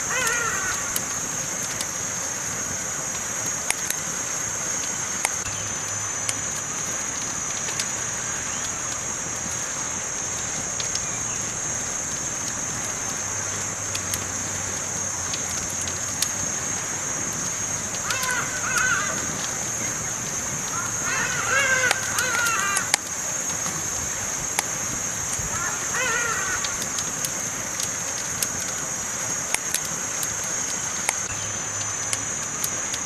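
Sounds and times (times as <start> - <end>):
burning wood crackling and popping: 0.0 - 33.0
campfire hissing: 0.0 - 33.0.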